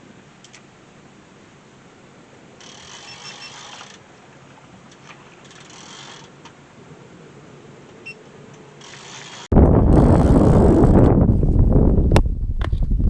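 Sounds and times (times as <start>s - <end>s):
wind buffeting microphone: 9.5s - 13.0s.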